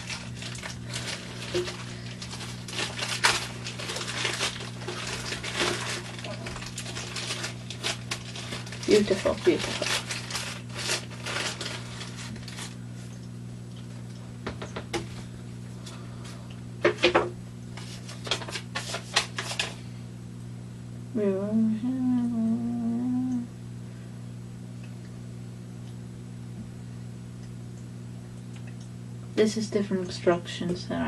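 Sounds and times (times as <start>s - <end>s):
plastic pieces and packaging handled: 0.0s - 12.8s, 17.8s - 19.8s
low electrical hum: 0.0s - 31.0s
person humming: 21.1s - 23.6s.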